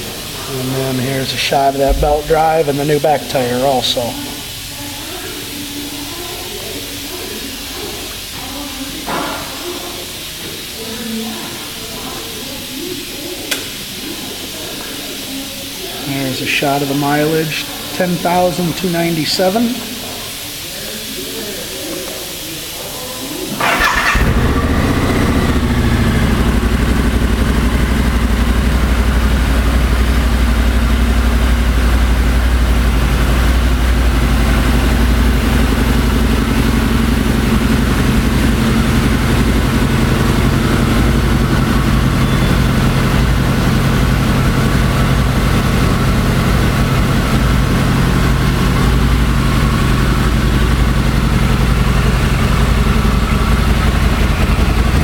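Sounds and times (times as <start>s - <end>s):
motorcycle engine idling: 0.0s - 9.6s, 23.6s - 55.0s.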